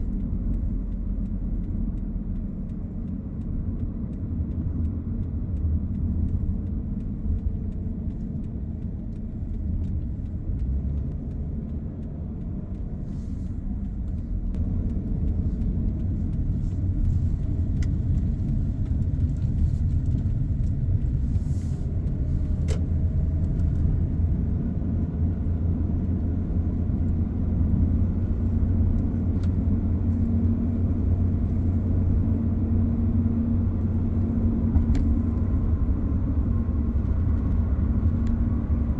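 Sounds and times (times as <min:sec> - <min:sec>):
faint ticks: 0:00.0 - 0:24.3
car engine and tyres rumbling: 0:00.0 - 0:38.9.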